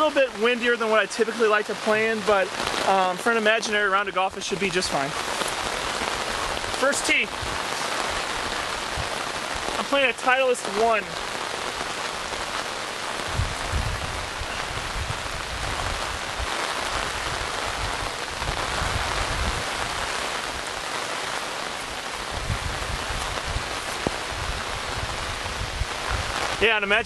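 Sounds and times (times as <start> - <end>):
rain falling on ground: 0.0 - 27.0
wind buffeting microphone: 4.3 - 9.8, 11.2 - 27.0.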